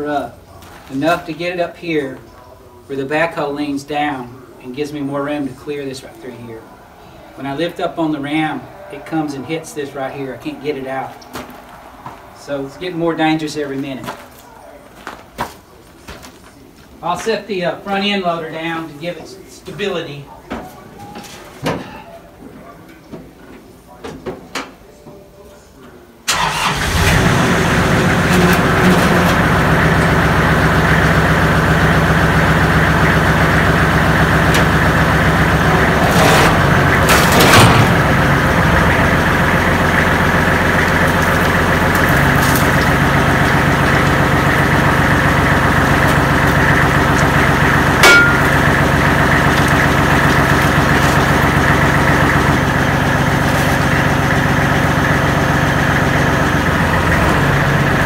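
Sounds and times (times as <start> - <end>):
tractor diesel engine running: 26.3 - 58.0.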